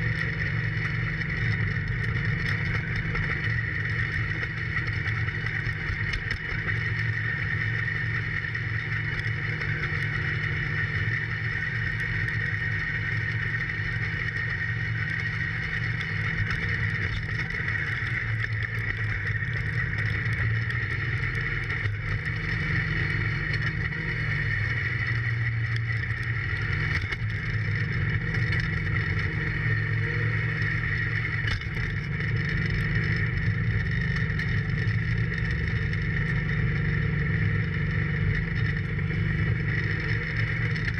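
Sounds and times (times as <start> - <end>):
diesel tractor engine running: 0.0 - 8.2.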